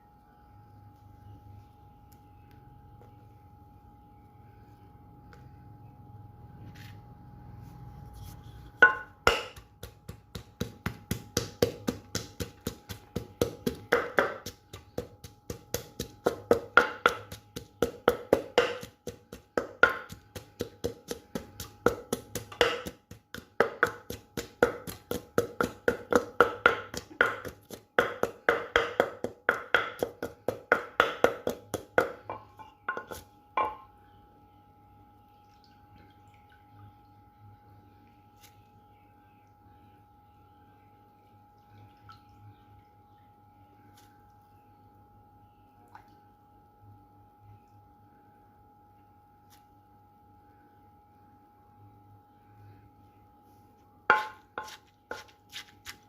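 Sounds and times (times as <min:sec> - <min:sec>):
pestle pounding in a mortar: 0:08.8 - 0:33.9, 0:54.1 - 0:56.0.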